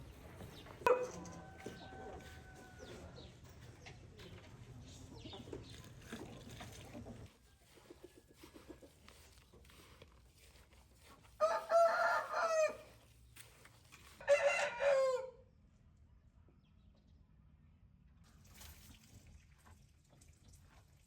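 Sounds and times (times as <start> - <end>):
rooster crowing: 0.9 - 3.2, 11.4 - 13.0, 14.2 - 15.4.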